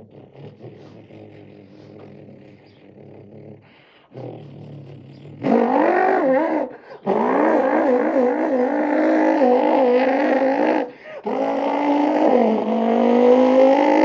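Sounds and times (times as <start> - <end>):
man imitating engine revving: 5.4 - 14.0.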